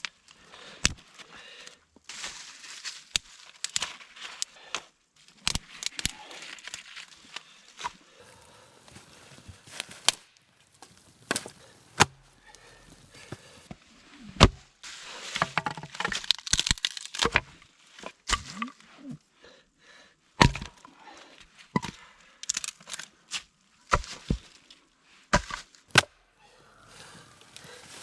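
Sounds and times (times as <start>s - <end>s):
crackling and rustling: 8.2s - 13.7s, 26.7s - 28.0s
sticks snapping and cracking: 8.2s - 13.7s, 16.3s - 17.3s, 25.9s - 26.1s, 26.8s - 28.0s.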